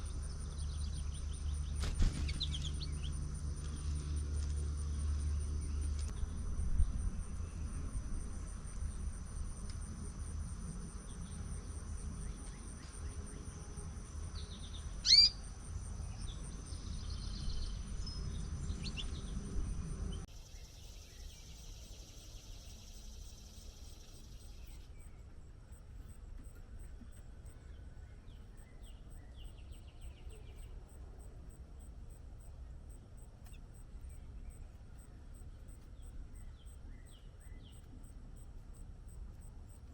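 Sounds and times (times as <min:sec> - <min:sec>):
low rumble: 0:00.0 - 0:12.3
insect pulsing trill: 0:00.0 - 0:24.9
soft bird chirps: 0:14.3 - 0:19.5, 0:20.1 - 0:25.3
loud bird call: 0:15.0 - 0:15.5.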